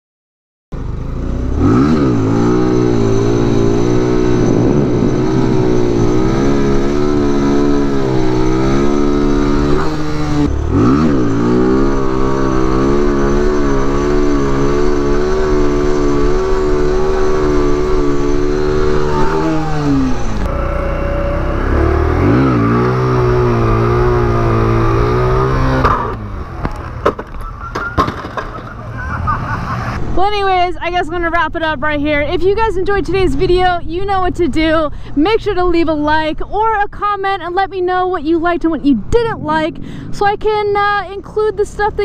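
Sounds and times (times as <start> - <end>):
small motorcycle engine revving: 0.8 - 27.0.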